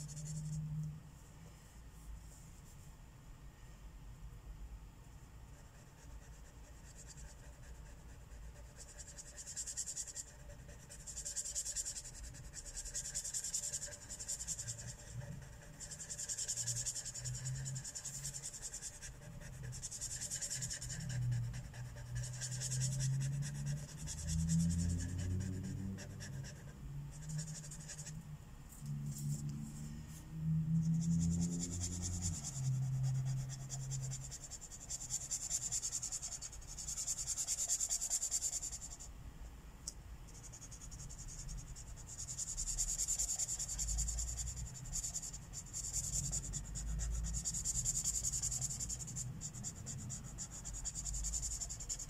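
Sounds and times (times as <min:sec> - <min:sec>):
marker rubbing across paper: 0:05.6 - 0:28.2, 0:28.8 - 0:29.8, 0:30.8 - 0:39.0, 0:40.4 - 0:52.0.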